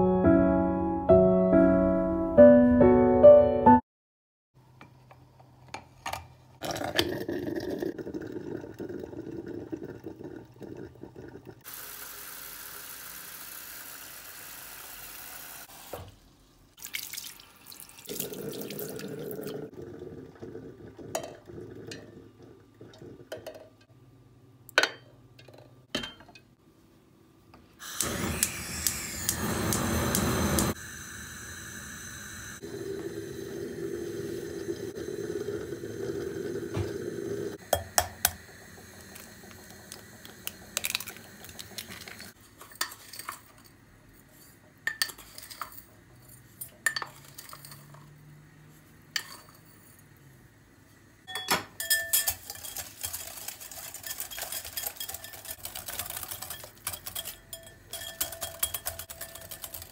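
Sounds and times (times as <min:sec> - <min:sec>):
liquid pouring: 0:06.6 - 0:13.2, 0:16.8 - 0:23.4
dishes and cutlery clinking: 0:44.9 - 0:48.2, 0:51.3 - 0:59.9.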